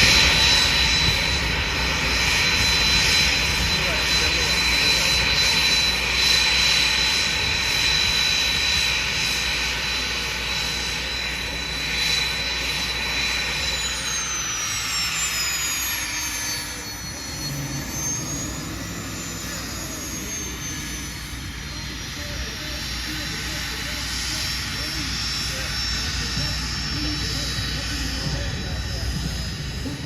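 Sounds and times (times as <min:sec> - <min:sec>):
aircraft engine whine: 0:00.0 - 0:30.0
whine falling in pitch: 0:12.5 - 0:23.8.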